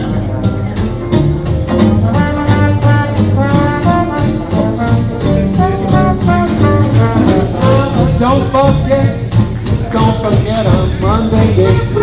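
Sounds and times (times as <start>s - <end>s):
rhythm section swing beat: 0.0s - 12.0s
brass horn solo: 2.0s - 8.3s, 11.6s - 12.0s.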